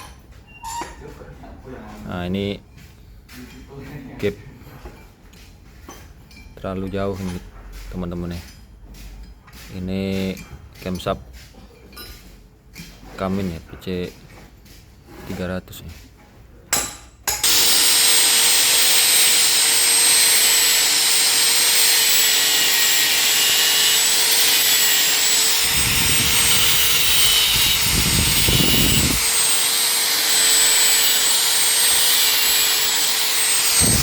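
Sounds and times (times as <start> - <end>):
deeper air rush: 25.7 - 29.2.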